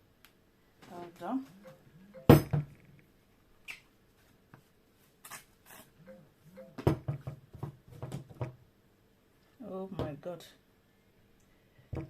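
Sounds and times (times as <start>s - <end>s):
kitchenware taps and knocks: 2.2s - 2.7s.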